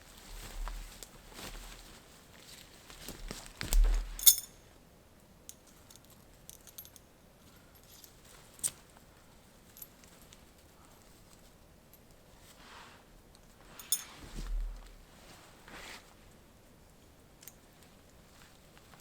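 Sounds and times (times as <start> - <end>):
sharp metallic clink: 4.2 - 4.6.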